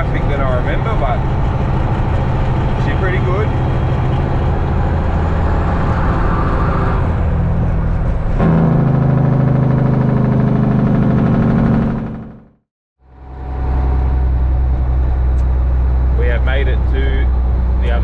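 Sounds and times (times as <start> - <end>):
truck diesel engine running: 0.0 - 18.0.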